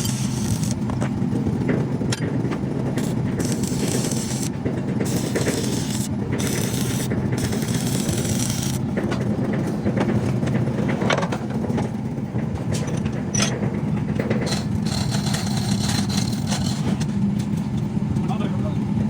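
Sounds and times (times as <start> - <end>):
engine idling: 0.0 - 19.0
hiss: 5.1 - 8.8.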